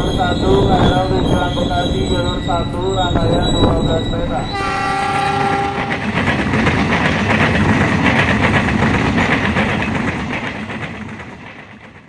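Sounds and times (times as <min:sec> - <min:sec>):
passenger train passing: 0:00.0 - 0:12.0
wheels clattering over rail joints: 0:04.8 - 0:11.9.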